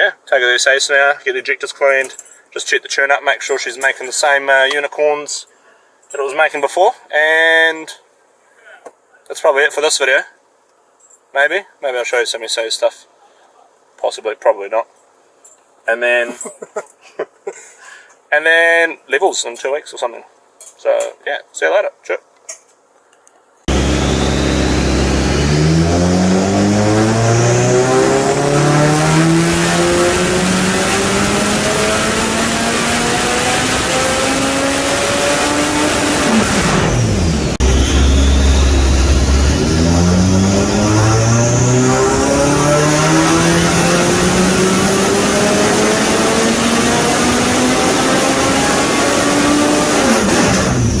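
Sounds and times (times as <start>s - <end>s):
car engine revving hard: 23.7s - 51.0s.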